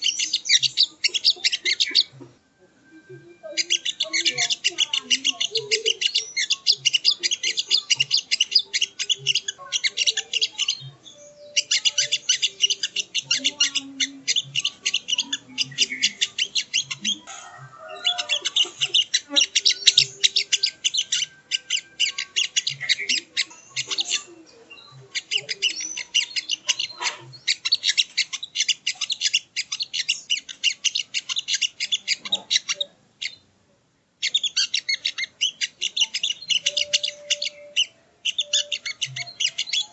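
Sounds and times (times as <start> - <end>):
jay rattling chattering calls: 0.0 - 2.1, 3.6 - 10.9, 11.5 - 24.3, 34.2 - 39.9.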